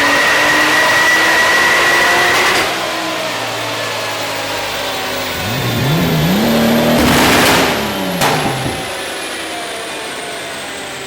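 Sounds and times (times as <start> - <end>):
car engine revving: 5.2 - 9.1.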